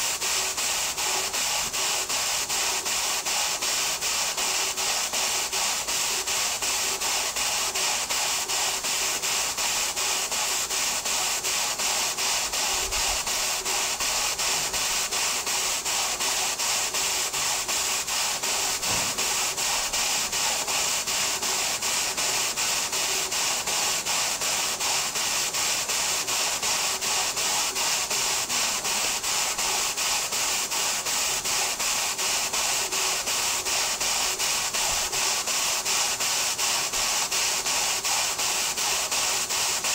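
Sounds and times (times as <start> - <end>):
steady steam hiss: 0.0 - 39.9
steam engine chuffing: 11.9 - 26.2.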